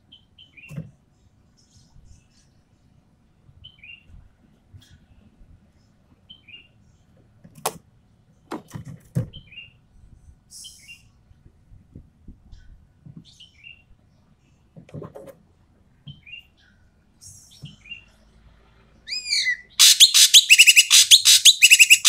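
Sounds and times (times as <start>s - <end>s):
bird giving harsh calls: 19.1s - 22.0s.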